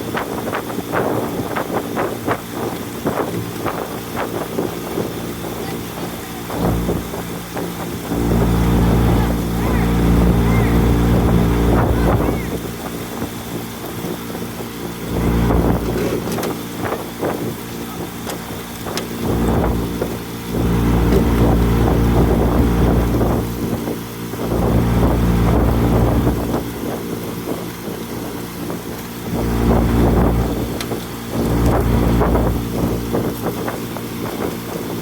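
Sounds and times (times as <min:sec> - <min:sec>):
motorboat engine running: 0:00.0 - 0:35.0
wind buffeting microphone: 0:00.0 - 0:35.0.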